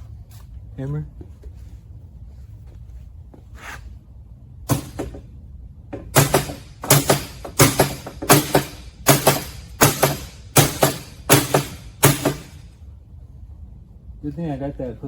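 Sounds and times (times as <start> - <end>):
hammer striking metal bearing: 6.0 - 12.6.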